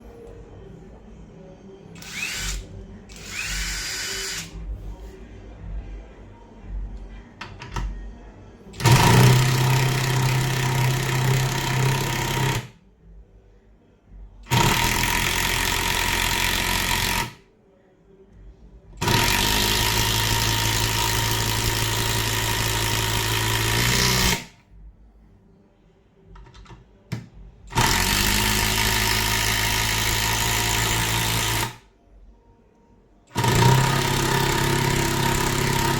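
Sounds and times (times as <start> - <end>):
impact driver running: 2.0 - 4.5, 8.8 - 12.7, 14.5 - 17.3, 19.0 - 24.5, 27.7 - 31.8, 33.4 - 35.9.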